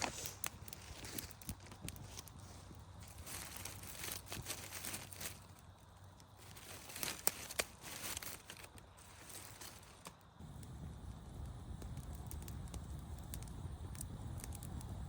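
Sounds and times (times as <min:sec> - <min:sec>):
crinkling and rustling: 0:00.0 - 0:10.4.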